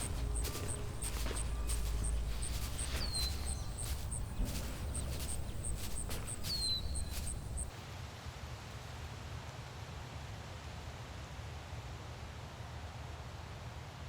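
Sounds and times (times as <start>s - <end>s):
bird chirps: 0.0s - 7.7s
high peeps: 0.0s - 7.7s.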